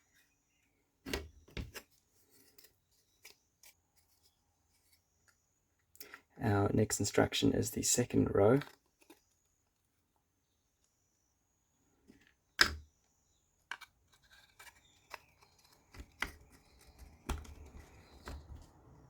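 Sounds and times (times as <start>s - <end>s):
wood clicking on wood: 12.6s - 12.8s, 13.7s - 19.0s.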